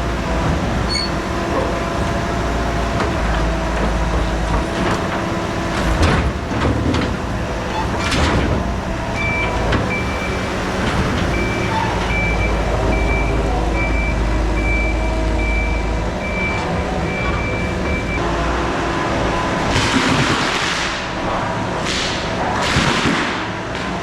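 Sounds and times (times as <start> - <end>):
skid steer engine rumbling: 0.0 - 24.0
backup alarm beeping: 9.2 - 18.2.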